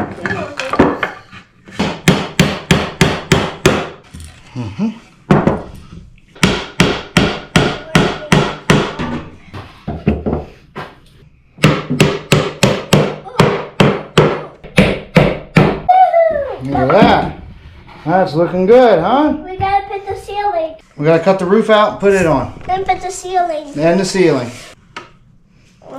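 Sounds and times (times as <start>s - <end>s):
hammer striking wooden boards: 1.7s - 4.0s, 6.4s - 9.2s, 11.6s - 15.9s.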